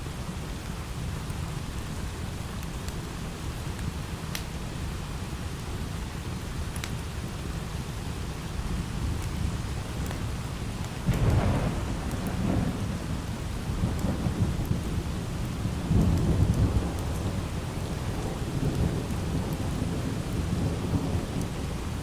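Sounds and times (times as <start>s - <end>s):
light rain falling: 0.0s - 22.0s
rolling thunder: 11.0s - 22.0s.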